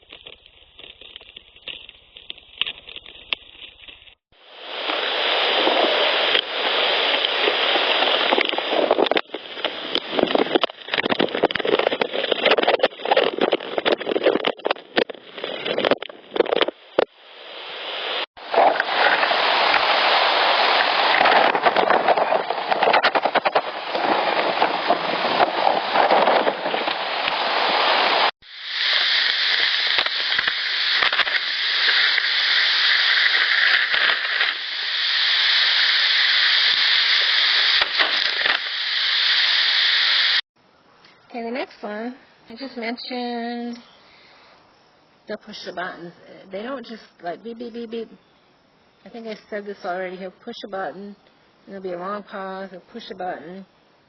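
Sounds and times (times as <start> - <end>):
rubbing and scraping on microphone: 0.0 - 4.2, 4.8 - 40.4.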